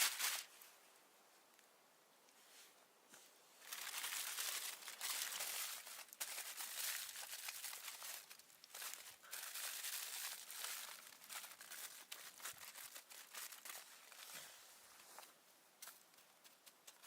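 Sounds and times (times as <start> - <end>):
crinkling and rustling: 0.0 - 0.6, 3.1 - 17.0.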